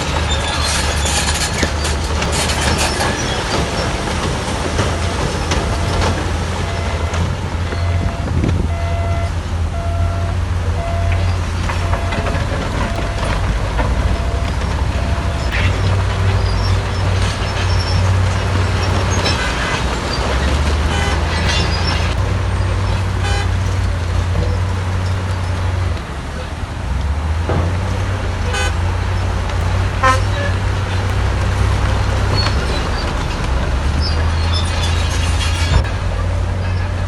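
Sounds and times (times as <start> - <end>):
heavy diesel machinery running: 0.0 - 37.0
reversing alarm beeping: 4.8 - 15.7.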